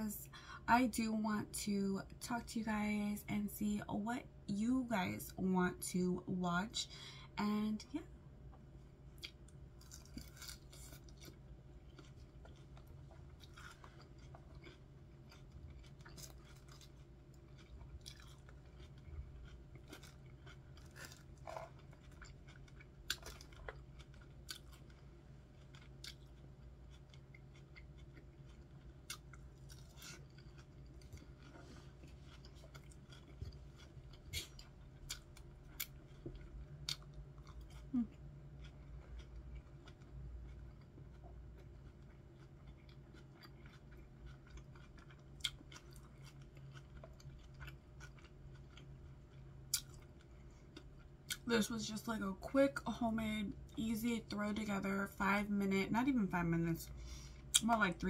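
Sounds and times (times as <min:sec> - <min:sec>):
faint low hum: 0:00.0 - 0:58.0
crunchy chewing of lettuce salad: 0:09.2 - 0:51.4.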